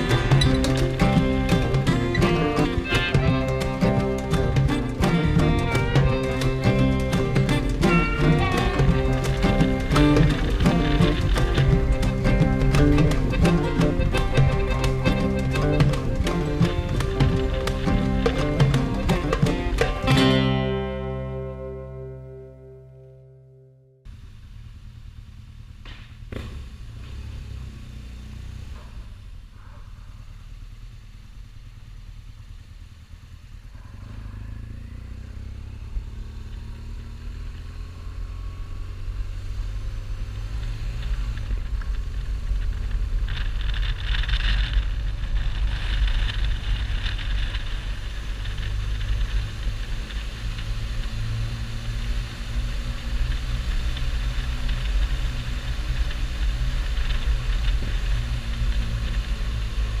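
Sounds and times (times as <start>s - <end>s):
motorcycle engine: 0.0s - 60.0s
wind and road hiss: 24.1s - 60.0s.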